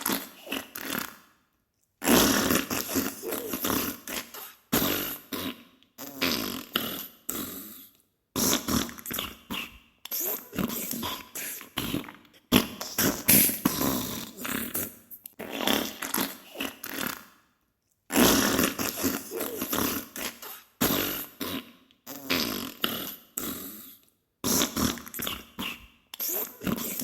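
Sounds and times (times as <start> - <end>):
spluttering fart bursts: 0.0 - 1.2, 2.0 - 7.5, 8.4 - 17.3, 18.1 - 23.7, 24.4 - 27.0.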